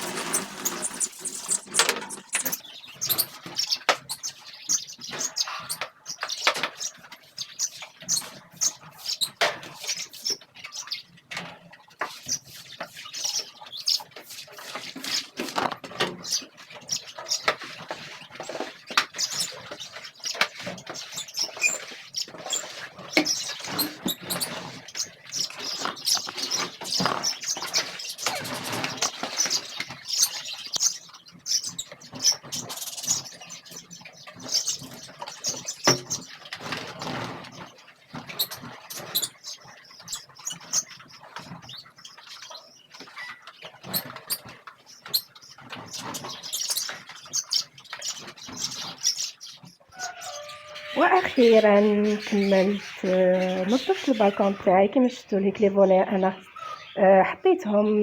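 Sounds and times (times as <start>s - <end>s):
scattered clicks and knocks: 0.0s - 3.2s
small birds chirping: 0.0s - 58.0s.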